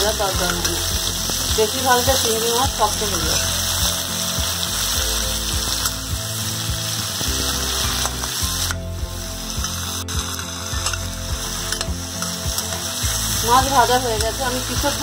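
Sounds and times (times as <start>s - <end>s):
prawns sizzling in oil: 0.0s - 15.0s.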